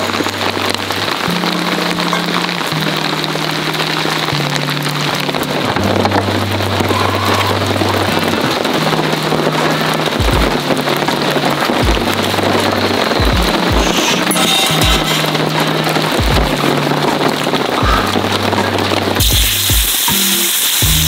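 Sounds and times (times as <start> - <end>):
background music bass: 0.0 - 21.0
deep beats: 0.0 - 21.0
heavy rain: 0.0 - 21.0.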